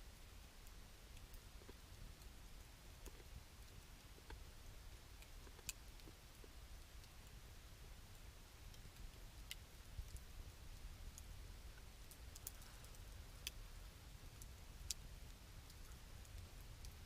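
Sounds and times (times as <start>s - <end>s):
campfire crackling and popping: 0.1s - 17.0s.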